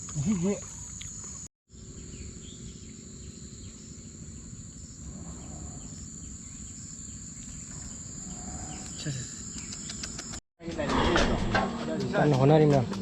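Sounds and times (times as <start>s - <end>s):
high-pitched insect drone: 0.0s - 10.4s.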